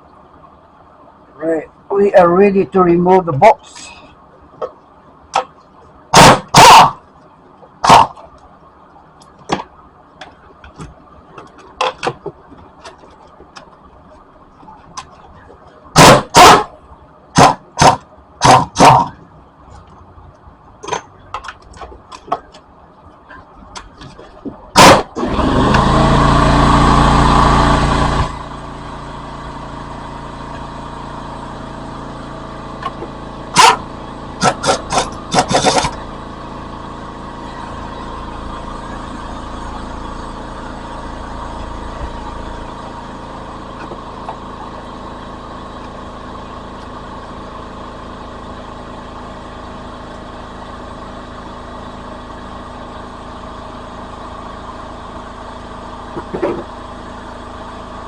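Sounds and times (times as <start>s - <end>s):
steady mechanical hum: 0.0s - 58.0s
power wrench running: 6.2s - 7.0s, 16.0s - 16.7s, 24.8s - 47.4s.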